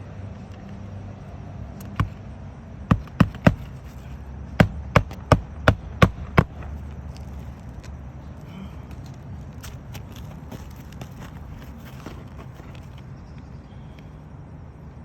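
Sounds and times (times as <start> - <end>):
hammer driving nails into shingles: 2.9 - 4.0, 4.6 - 6.7.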